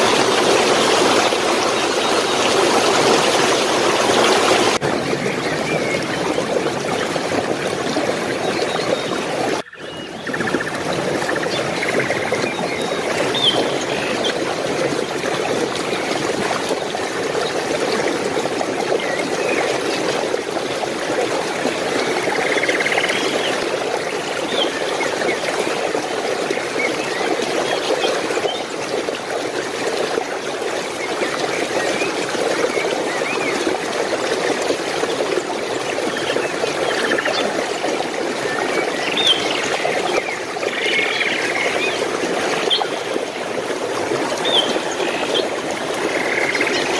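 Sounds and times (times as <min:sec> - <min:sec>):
stream flowing: 0:00.0 - 0:46.9.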